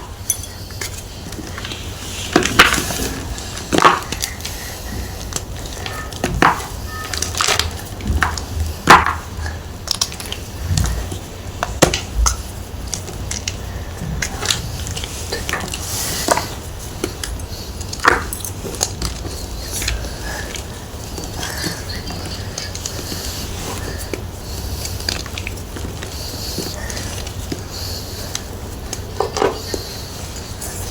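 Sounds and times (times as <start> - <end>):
chalk blocks crunching: 0.0 - 30.9.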